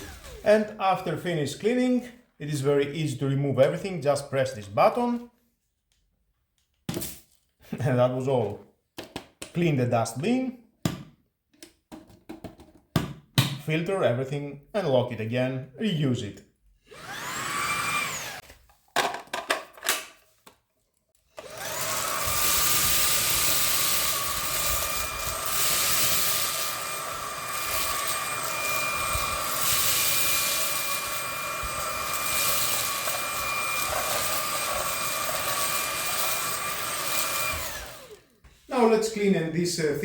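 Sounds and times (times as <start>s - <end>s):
stick vacuum motor whining: 0.0s - 0.7s, 16.9s - 18.4s, 21.3s - 38.4s.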